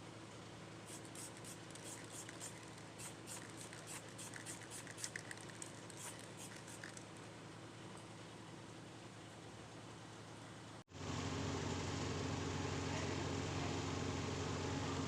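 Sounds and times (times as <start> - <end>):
light scratching and clicking: 0.9 - 7.2.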